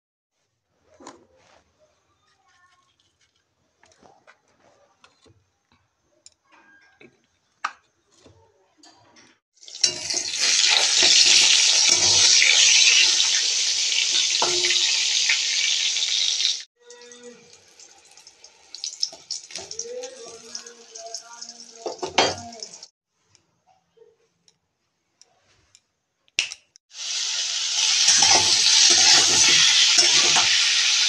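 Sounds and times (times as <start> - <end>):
faint clicks and handling sounds: 0.8 - 9.4
eggplant sizzling in hot oil: 9.6 - 16.7, 17.5 - 22.0, 26.9 - 31.0.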